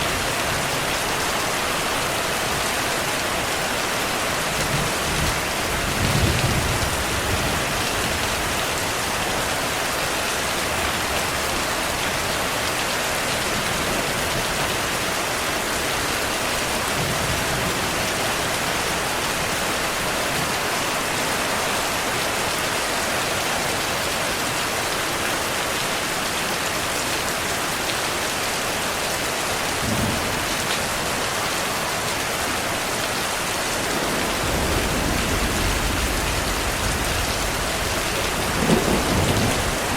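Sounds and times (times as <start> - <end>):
heavy rain pattering: 0.0 - 39.9
faint thunder rumbles: 4.3 - 9.7, 29.7 - 31.8, 33.3 - 39.9.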